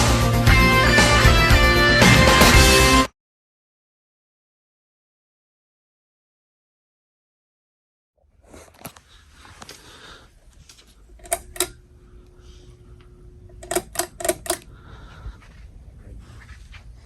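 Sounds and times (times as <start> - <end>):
low steady hum: 8.2 - 17.0
sharp mechanical clicks: 11.1 - 11.8, 13.5 - 14.7.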